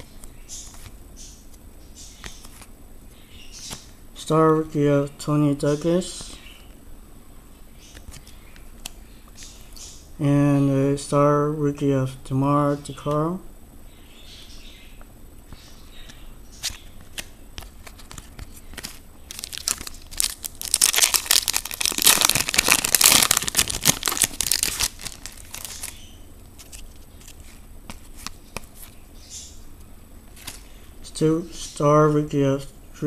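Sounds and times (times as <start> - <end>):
cards rustling and clicking: 16.1 - 29.0, 30.3 - 30.7
foil wrapper tearing and crinkling: 18.8 - 26.0.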